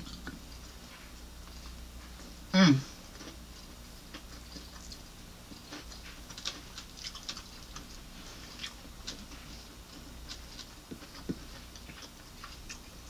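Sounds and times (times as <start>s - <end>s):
person chewing fried chicken: 0.0s - 13.0s
crisp clicks and smacks: 4.1s - 13.0s.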